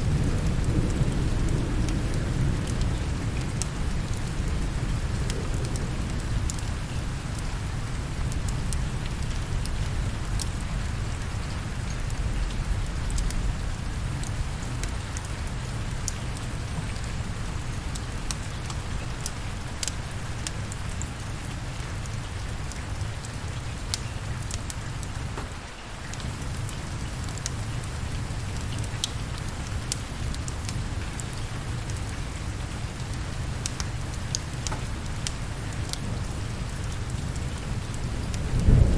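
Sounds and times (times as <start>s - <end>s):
steady rainfall: 0.0s - 38.9s
sharp ticks and crackles: 8.2s - 15.4s, 16.0s - 21.2s.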